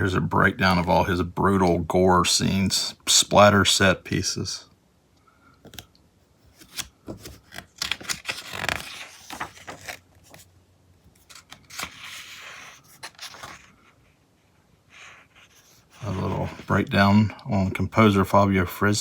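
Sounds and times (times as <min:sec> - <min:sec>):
magazine pages rustling: 0:06.5 - 0:10.5, 0:11.1 - 0:14.0, 0:15.2 - 0:17.2.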